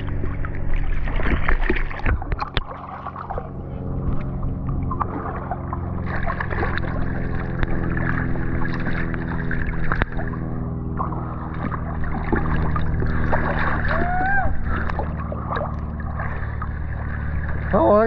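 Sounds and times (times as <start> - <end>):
river water rushing: 11.0 - 18.0.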